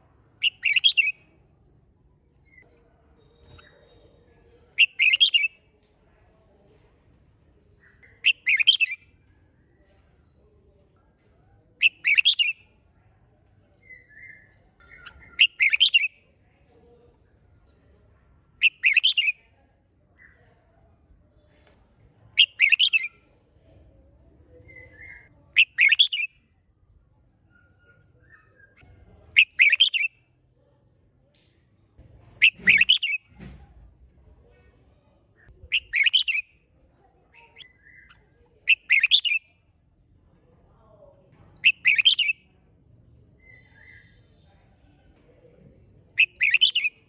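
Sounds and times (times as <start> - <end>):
bird singing bright phrases: 0.1 - 1.6, 2.2 - 6.8, 7.4 - 11.0, 11.8 - 16.4, 17.3 - 19.5, 22.4 - 23.4, 24.5 - 30.3, 31.3 - 33.4, 35.0 - 39.7, 41.0 - 44.8, 46.0 - 47.0.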